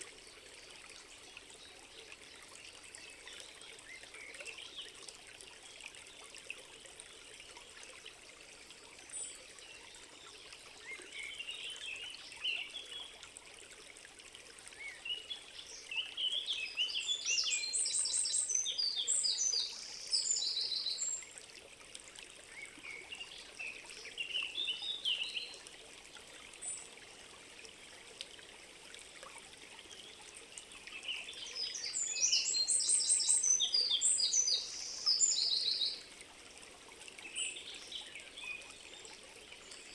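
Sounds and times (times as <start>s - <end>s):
stream trickling: 0.0s - 39.9s
songbird singing: 14.8s - 21.3s, 29.9s - 36.1s.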